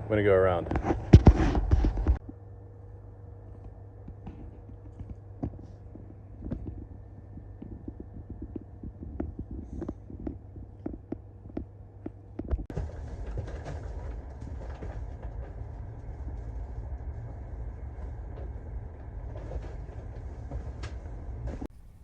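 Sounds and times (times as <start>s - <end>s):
regular rail clicks: 3.6s - 21.8s
knocks and rattles: 4.1s - 21.8s
train rumbling on rails: 4.6s - 22.0s.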